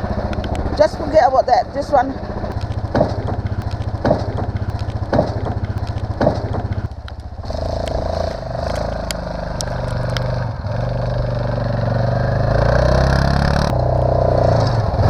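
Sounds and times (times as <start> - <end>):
engine idling: 0.0 - 12.6.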